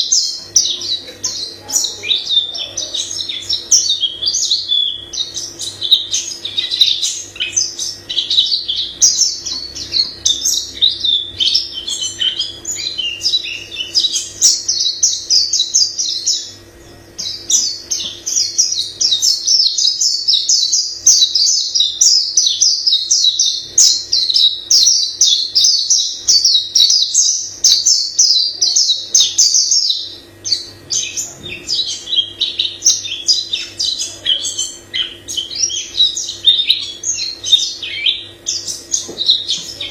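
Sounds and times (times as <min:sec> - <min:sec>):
bird twittering song: 0:00.0 - 0:39.9
faint low hum: 0:00.0 - 0:39.9.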